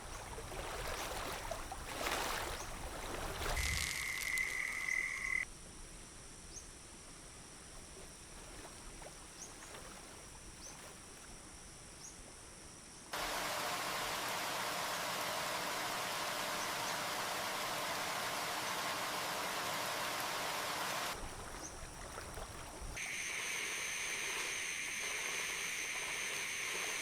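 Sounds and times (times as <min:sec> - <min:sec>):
frogs calling: 0:00.0 - 0:05.5, 0:21.2 - 0:27.0.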